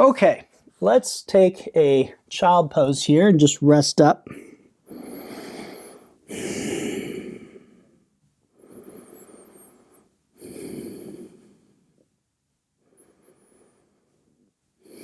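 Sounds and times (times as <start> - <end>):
person breathing deeply: 4.3 - 12.0, 12.8 - 15.0.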